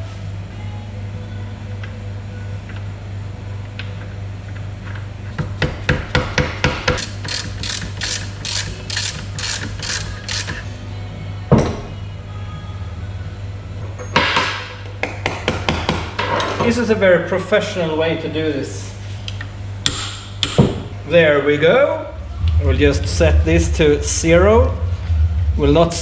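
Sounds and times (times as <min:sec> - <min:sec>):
ratchet strokes: 0:05.3 - 0:10.7
torque wrench clicking: 0:05.3 - 0:10.7.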